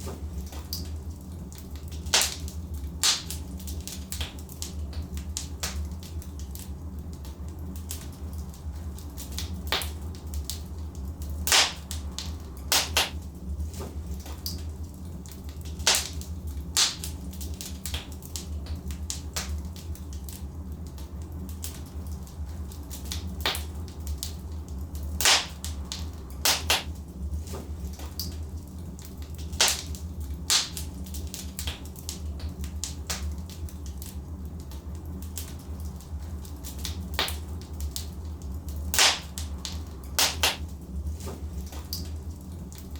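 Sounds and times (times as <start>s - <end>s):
fire crackling and popping: 0.0s - 42.9s
low rumble of flames: 0.0s - 42.9s.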